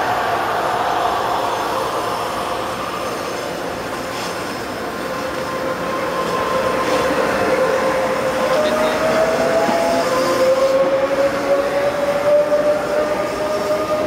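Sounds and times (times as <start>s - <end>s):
train rumbling on rails: 0.0s - 14.0s
train wheels squealing: 3.0s - 14.0s.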